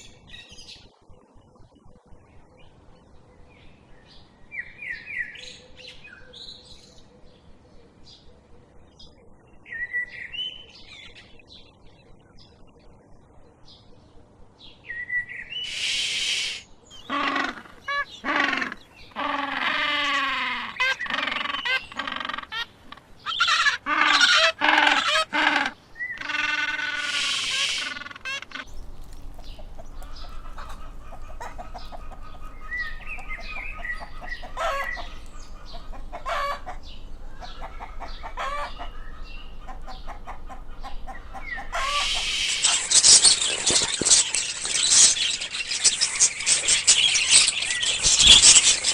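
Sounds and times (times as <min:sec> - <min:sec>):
chickens calling loudly: 0:15.7 - 0:48.9
chickens clucking and chirping: 0:27.0 - 0:48.9.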